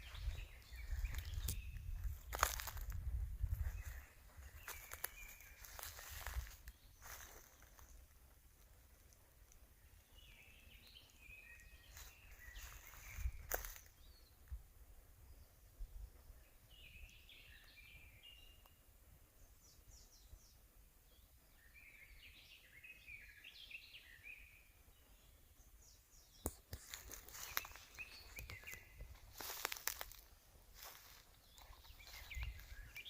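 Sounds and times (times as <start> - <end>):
twigs and leaves crackling: 0.1 - 10.2, 11.0 - 14.0, 26.5 - 33.0.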